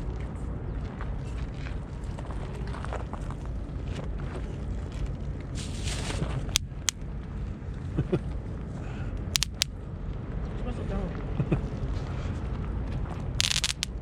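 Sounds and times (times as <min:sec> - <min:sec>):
wind rumble on microphone: 0:00.0 - 0:14.0
firecracker pops: 0:13.4 - 0:14.0.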